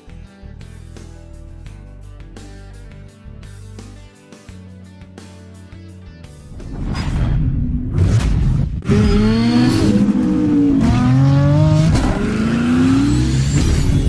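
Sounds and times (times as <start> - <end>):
car engine revving: 8.8 - 14.0.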